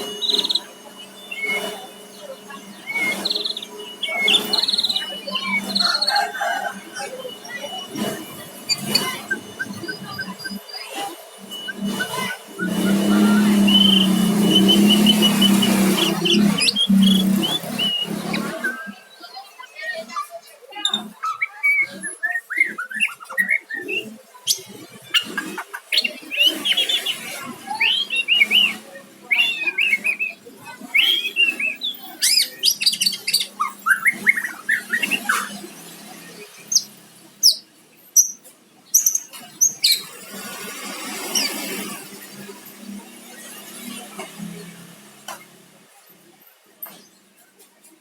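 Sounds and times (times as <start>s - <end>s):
bird singing whistled phrases: 0.0s - 7.9s, 11.5s - 19.1s, 27.8s - 35.6s.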